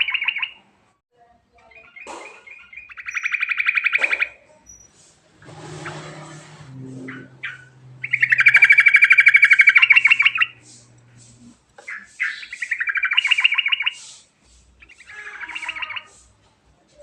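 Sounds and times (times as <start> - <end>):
bird rolling trills: 1.9 - 14.1, 14.8 - 16.2.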